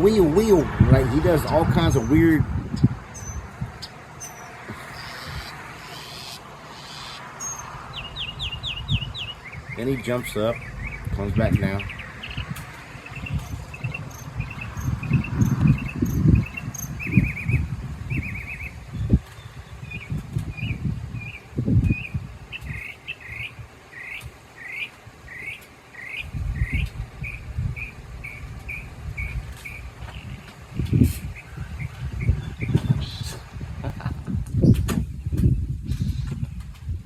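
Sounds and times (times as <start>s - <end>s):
mockingbird singing: 0.0s - 2.4s, 3.1s - 33.7s
irregular low rumbles: 7.5s - 18.2s, 26.2s - 33.0s.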